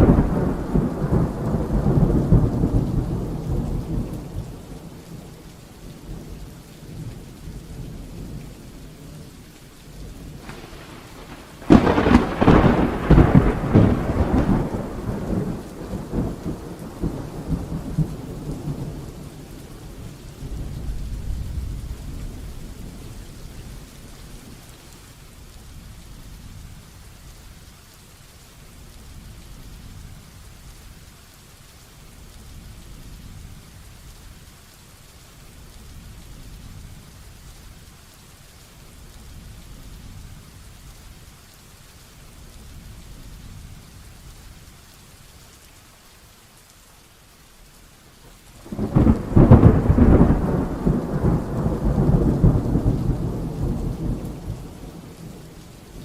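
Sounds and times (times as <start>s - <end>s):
thunder crackling and rumbling: 0.0s - 24.9s, 48.6s - 56.0s
heavy rain falling: 0.0s - 56.0s.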